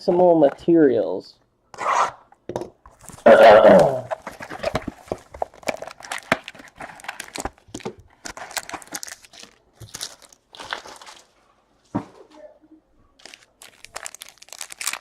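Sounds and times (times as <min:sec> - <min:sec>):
card wrappers crinkling and tearing: 0:02.9 - 0:11.4, 0:13.2 - 0:15.0.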